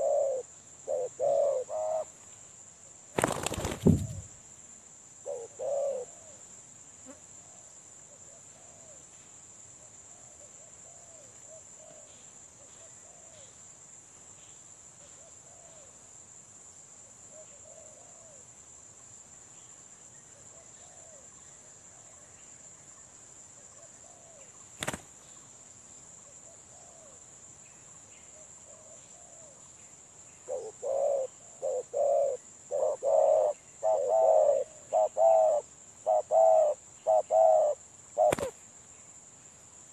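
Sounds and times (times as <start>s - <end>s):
dove cooing: 0.0s - 2.1s, 5.2s - 6.4s, 30.5s - 38.6s.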